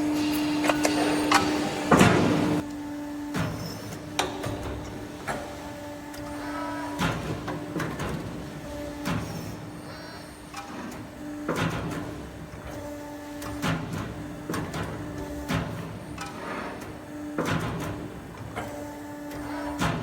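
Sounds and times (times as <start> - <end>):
thin machine whine: 0.0 - 3.9
machine motor hum: 0.0 - 9.8.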